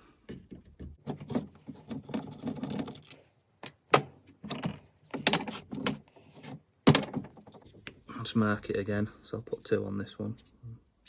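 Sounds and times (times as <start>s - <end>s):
small parts clicking and scraping: 1.0s - 3.8s.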